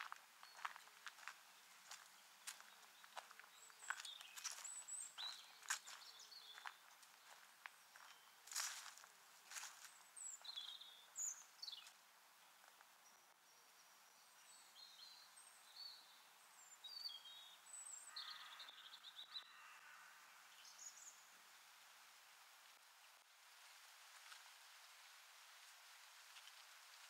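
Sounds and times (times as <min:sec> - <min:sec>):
footsteps on a path: 0:00.0 - 0:12.0
songbird chirps and whistles: 0:01.8 - 0:11.9.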